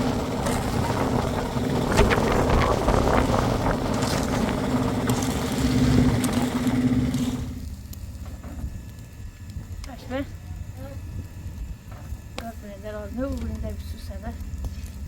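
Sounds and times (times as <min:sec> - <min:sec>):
knocks and scraping: 0:00.0 - 0:07.6
small engine running: 0:00.0 - 0:09.2.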